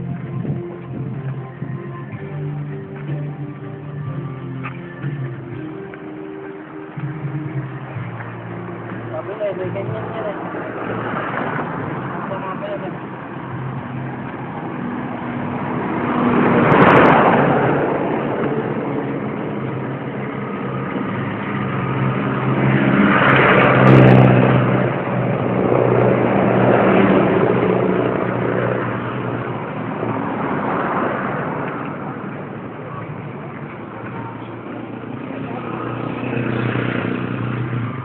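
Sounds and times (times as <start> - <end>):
vehicles passing on a road: 0.0 - 38.0.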